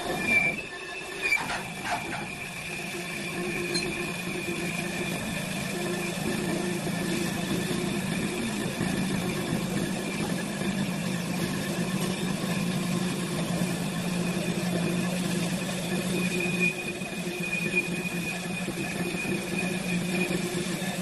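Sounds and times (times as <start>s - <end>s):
high whine: 0.0s - 21.0s
lathe motor hum: 0.0s - 21.0s.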